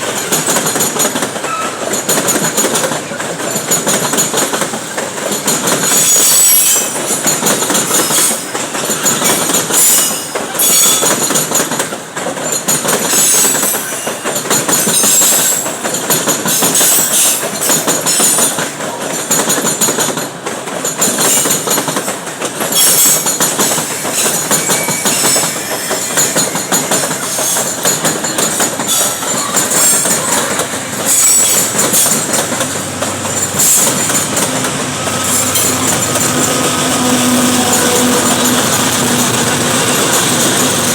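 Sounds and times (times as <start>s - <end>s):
wheels clattering over rail joints: 0.0s - 40.9s
high-pitched wheel squeal: 5.9s - 7.0s, 22.8s - 27.7s, 28.9s - 32.3s.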